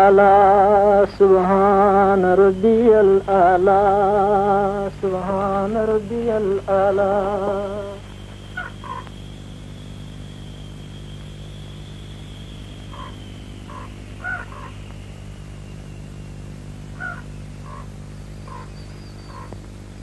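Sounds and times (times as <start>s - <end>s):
faint high whine: 0.0s - 20.0s
steady low hum: 0.0s - 20.0s
short bird calls: 8.0s - 20.0s.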